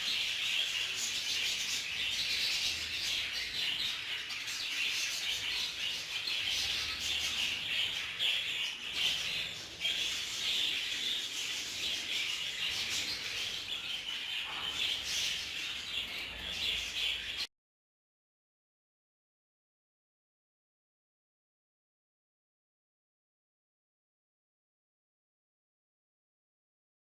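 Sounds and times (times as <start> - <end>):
budgerigars chattering and chirping: 0.0 - 17.5.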